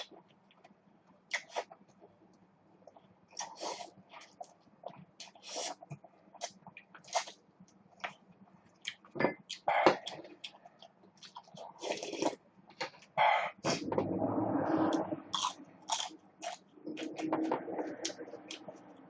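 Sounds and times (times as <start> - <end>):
person chewing crunchy food: 2.8 - 7.4, 8.0 - 12.4, 15.3 - 19.0.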